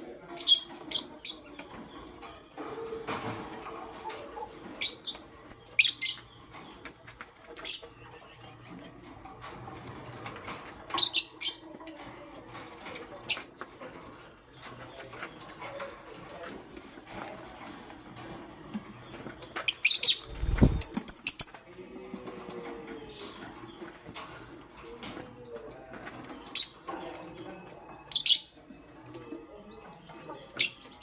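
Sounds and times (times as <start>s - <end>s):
lovebirds chirping: 0.0s - 21.8s.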